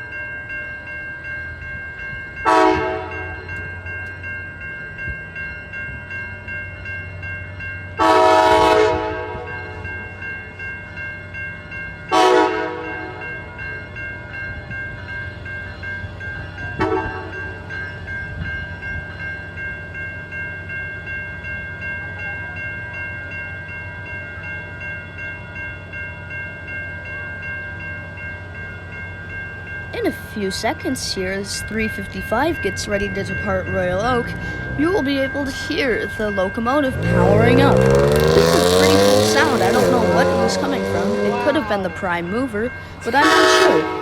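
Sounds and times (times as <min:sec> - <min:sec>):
locomotive air horn blasts: 0:02.5 - 0:03.2, 0:08.0 - 0:09.5, 0:12.1 - 0:13.0, 0:36.9 - 0:41.9, 0:43.0 - 0:44.0
locomotive idling hum: 0:28.4 - 0:44.0.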